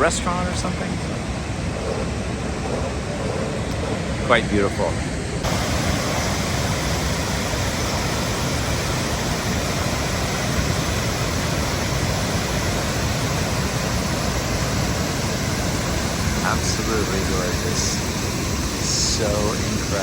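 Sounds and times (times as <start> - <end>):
waterfall rushing: 5.4 - 20.0.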